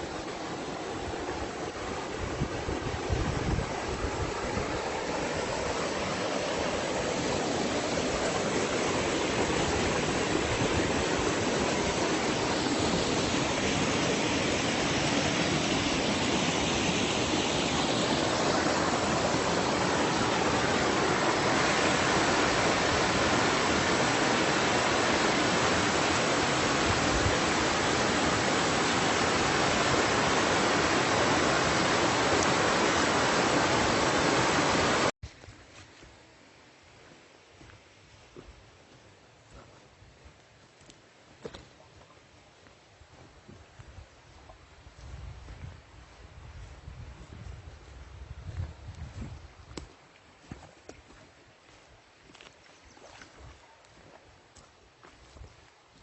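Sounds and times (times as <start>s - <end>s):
fast-running stream rushing: 0.0s - 35.2s.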